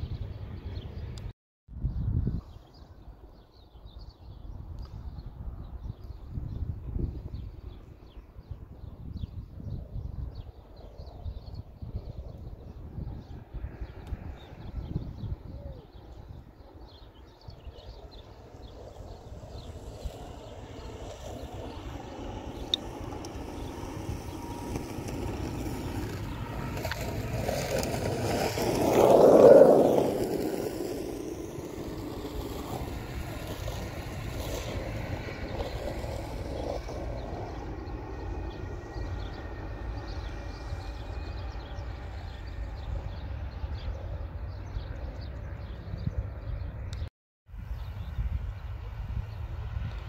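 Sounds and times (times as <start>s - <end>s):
wind rumble on microphone: 0.0s - 50.0s
distant train rushing past: 18.2s - 44.4s.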